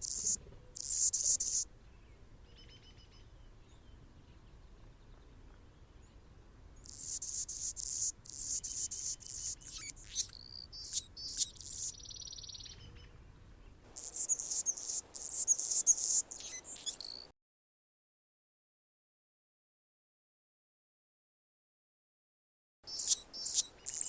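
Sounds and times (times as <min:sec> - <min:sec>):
hummingbird chips and buzz: 0:00.0 - 0:01.7, 0:06.8 - 0:12.2, 0:14.0 - 0:17.3, 0:22.9 - 0:24.0.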